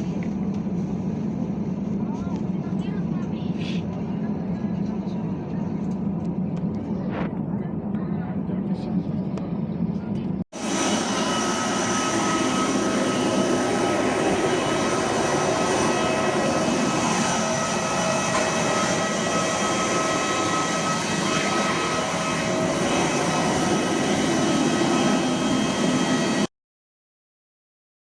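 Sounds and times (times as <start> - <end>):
thin steady engine whine: 0.0 - 26.5
jet engine rushing hiss: 10.6 - 26.5.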